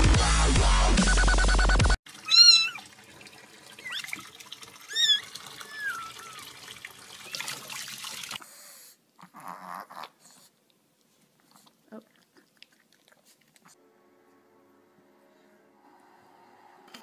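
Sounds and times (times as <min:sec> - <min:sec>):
running tap water: 0:02.1 - 0:08.4.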